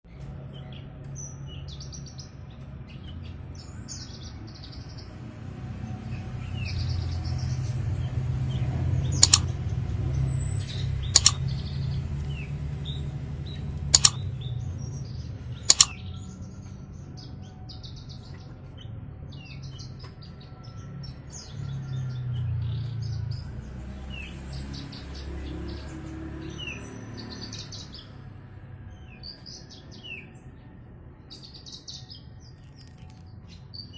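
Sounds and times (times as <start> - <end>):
bird chirping and trilling: 9.2 - 9.6, 10.6 - 11.7, 14.0 - 14.2, 15.7 - 16.1
sharp clicks: 9.2 - 9.6, 11.1 - 11.6, 13.8 - 14.2, 15.7 - 16.0.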